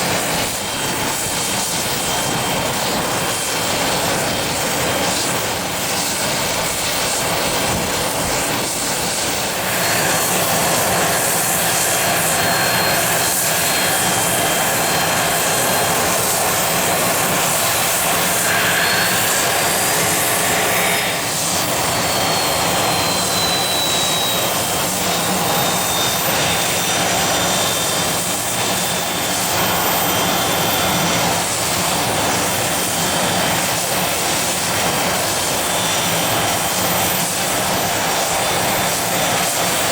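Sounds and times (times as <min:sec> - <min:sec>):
jet engines roaring: 0:00.0 - 0:39.9
faint high whine: 0:08.2 - 0:39.8.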